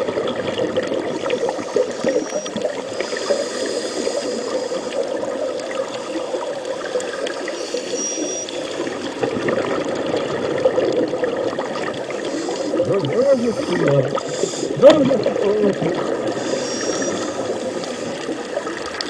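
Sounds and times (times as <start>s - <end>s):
underwater gurgling hiss: 0.0s - 19.0s
small crackling clicks: 4.2s - 12.9s, 16.7s - 19.0s.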